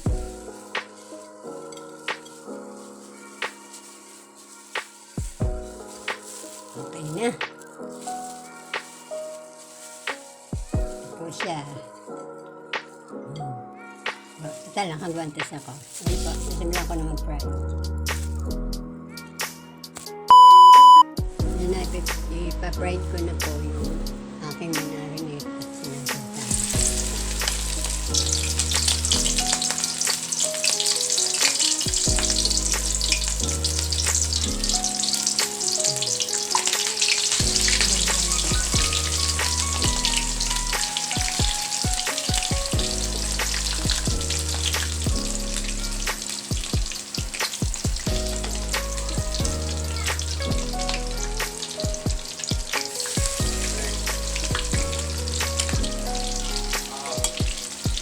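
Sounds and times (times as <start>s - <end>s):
chicken deep-frying in oil: 0.0s - 11.0s, 15.4s - 17.3s, 25.8s - 58.0s
background music with bass line: 26.2s - 29.7s, 37.4s - 41.0s, 42.5s - 46.4s, 48.0s - 52.0s, 53.4s - 57.1s.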